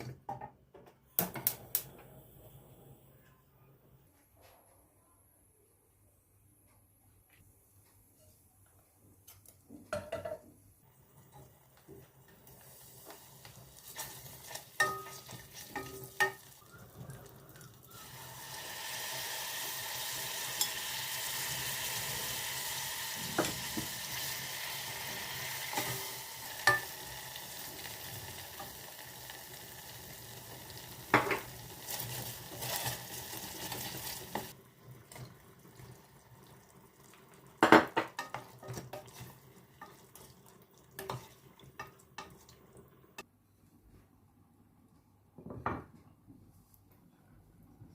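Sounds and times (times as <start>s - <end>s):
food sizzling in a pan: 11.0s - 43.2s.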